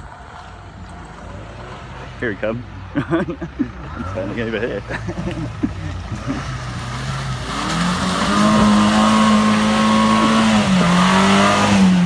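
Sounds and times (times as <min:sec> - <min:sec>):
car engine revving: 0:03.8 - 0:12.0.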